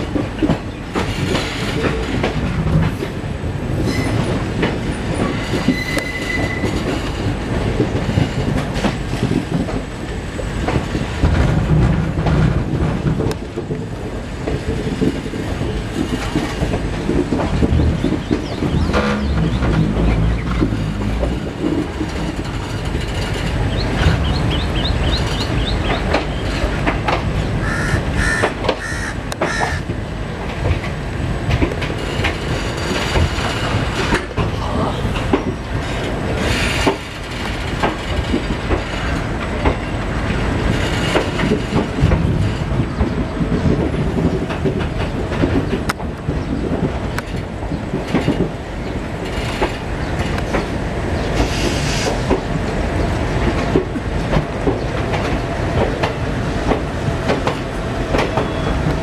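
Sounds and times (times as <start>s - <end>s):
train coach rumbling: 0.0s - 59.0s
wheels clattering over rail joints: 0.0s - 59.0s
wheels squealing: 5.2s - 7.0s.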